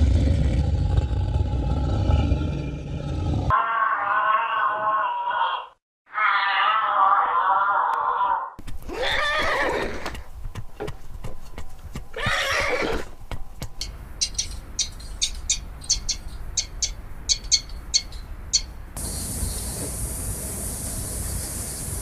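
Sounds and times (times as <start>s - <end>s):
horse whinnying: 8.2s - 10.2s, 12.1s - 13.1s
hooves clip-clopping: 8.6s - 15.4s.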